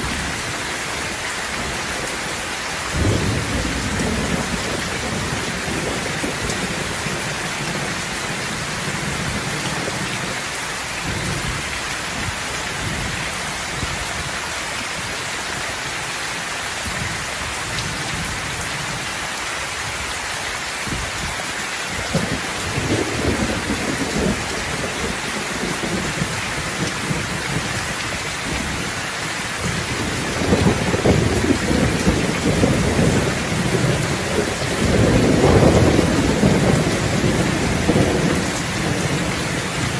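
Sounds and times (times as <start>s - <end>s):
heavy rain: 0.0s - 39.9s
rolling thunder: 2.9s - 10.4s, 22.0s - 29.0s, 29.6s - 39.9s.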